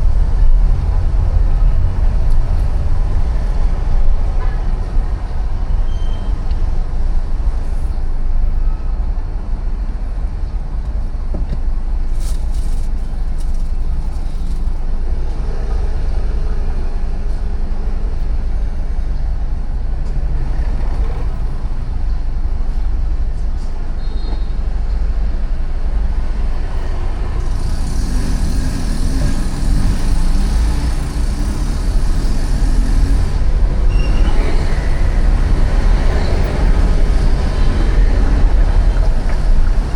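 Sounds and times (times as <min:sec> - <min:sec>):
low traffic rumble: 0:00.0 - 0:39.9
passing vehicles: 0:00.0 - 0:39.9
hiss: 0:27.4 - 0:33.4.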